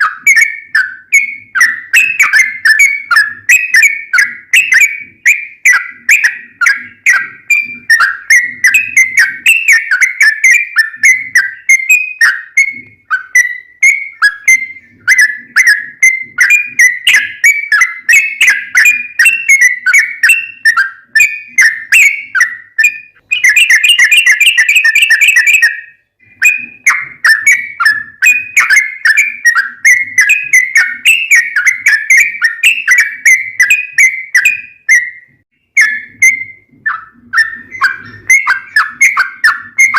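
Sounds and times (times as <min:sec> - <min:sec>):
bird singing bubbly whistled notes: 0:00.0 - 0:39.9.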